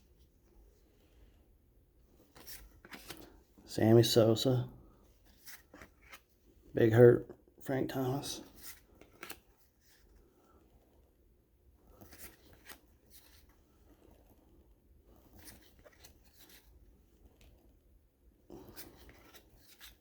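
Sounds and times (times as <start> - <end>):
cards rustling and clicking: 2.1 - 3.6, 5.2 - 11.0, 11.8 - 14.5, 15.1 - 17.8, 18.5 - 20.0.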